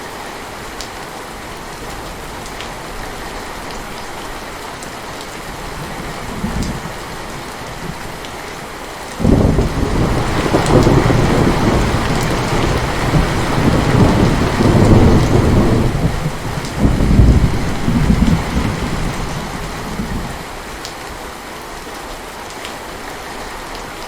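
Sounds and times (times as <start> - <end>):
heavy rain falling: 0.0 - 24.0
thunder rolling: 9.2 - 20.4.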